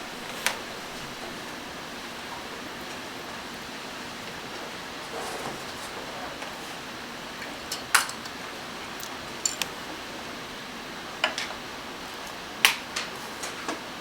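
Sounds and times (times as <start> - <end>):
steady low hiss: 0.0 - 4.3
small metal tools clicking: 9.0 - 9.7.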